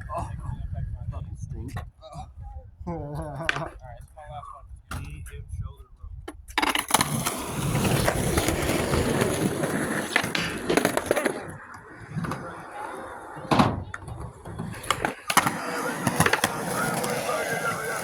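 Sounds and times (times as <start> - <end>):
skateboard clacks: 6.3 - 18.0
skateboard wheels rolling on concrete: 6.3 - 18.0.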